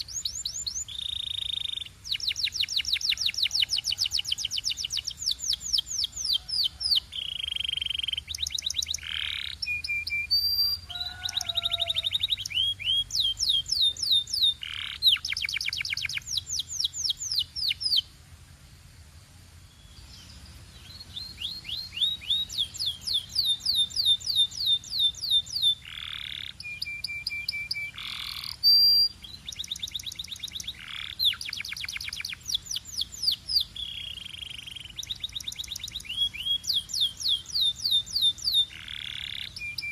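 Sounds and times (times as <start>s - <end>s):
canary singing trills: 0.0s - 18.1s, 19.7s - 39.9s.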